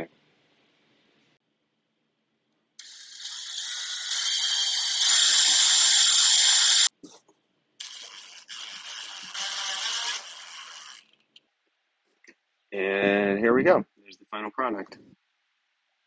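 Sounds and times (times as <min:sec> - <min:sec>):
power drill motor whirring: 0:02.8 - 0:06.9, 0:07.8 - 0:11.2.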